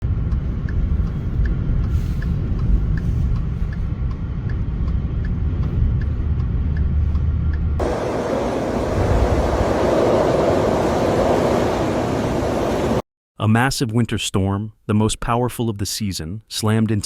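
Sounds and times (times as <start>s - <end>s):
vehicle driving rumble: 0.0s - 13.0s
steady rushing noise: 0.1s - 13.0s
faint repeating tick: 0.2s - 7.8s.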